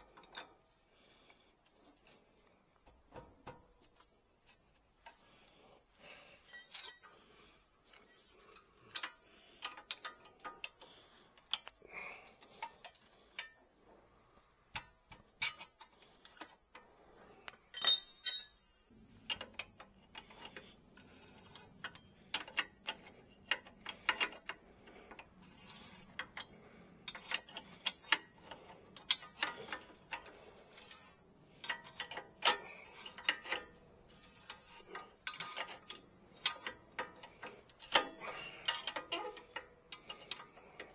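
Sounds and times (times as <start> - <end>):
hand tools clicking and tapping: 17.8 - 18.7.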